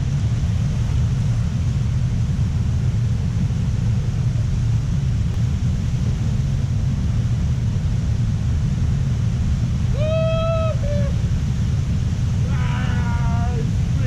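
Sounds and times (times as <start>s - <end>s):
low rumbling noise: 0.0s - 14.0s.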